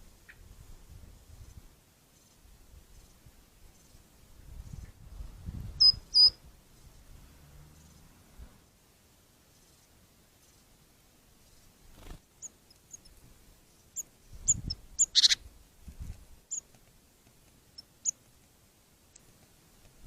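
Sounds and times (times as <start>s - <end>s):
small bird chirping: 5.7s - 7.1s, 9.5s - 10.7s, 11.4s - 18.5s
harsh bird squeak: 14.5s - 15.4s.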